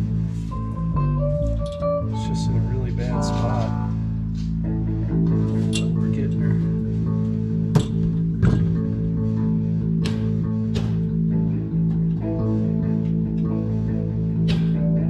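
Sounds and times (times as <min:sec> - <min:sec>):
guitar music with bass: 0:00.0 - 0:15.0
sharp knocks: 0:07.7 - 0:08.9.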